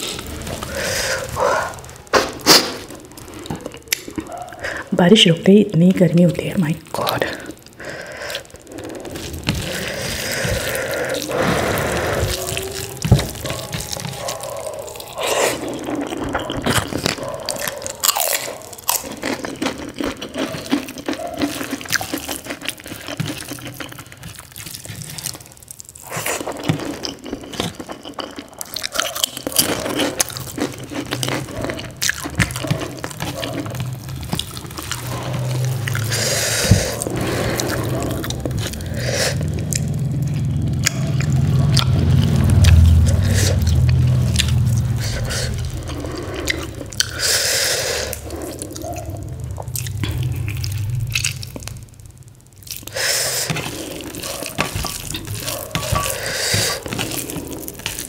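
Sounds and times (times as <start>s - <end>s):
low rumble: 0.0s - 3.7s, 33.6s - 54.2s
crunching bites: 7.0s - 58.0s
chewing and lip smacks: 7.2s - 51.8s.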